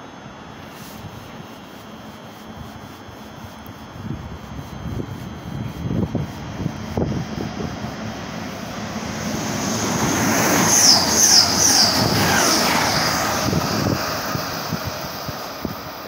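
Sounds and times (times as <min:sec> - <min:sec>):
high wavering squeal: 0:04.0 - 0:16.0
train passing: 0:05.1 - 0:16.0.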